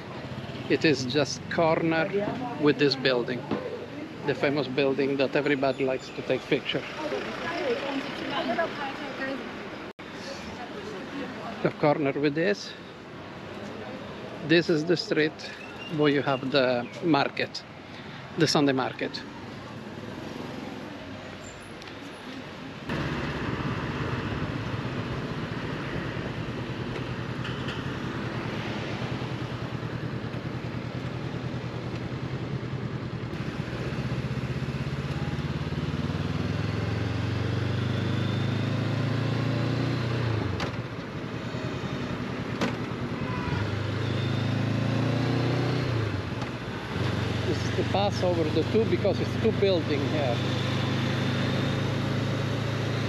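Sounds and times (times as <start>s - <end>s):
motorcycle engine running: 29.0s - 37.6s.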